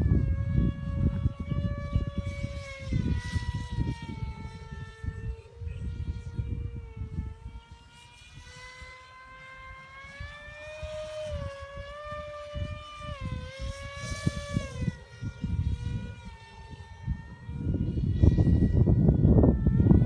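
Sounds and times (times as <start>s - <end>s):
motor drone: 0.0s - 20.0s
wind gusting on microphone: 0.0s - 20.0s.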